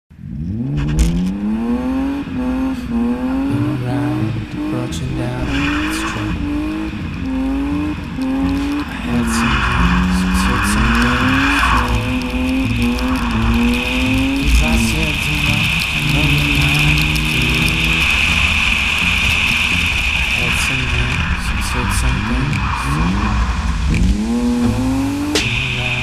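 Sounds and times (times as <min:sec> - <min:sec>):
car engine revving hard: 0:00.2 - 0:26.0
tyres squealing: 0:02.5 - 0:26.0.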